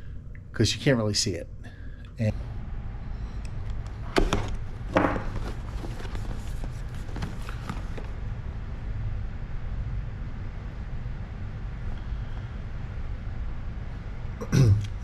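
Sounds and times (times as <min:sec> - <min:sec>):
low background rumble: 0:00.0 - 0:15.0
man speaking: 0:00.6 - 0:01.6, 0:02.2 - 0:02.4.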